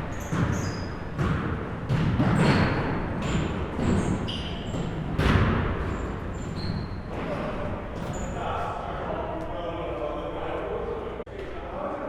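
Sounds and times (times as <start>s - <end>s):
basketball bouncing on gym floor: 0.0s - 6.2s
sneaker squeaks: 0.0s - 8.6s.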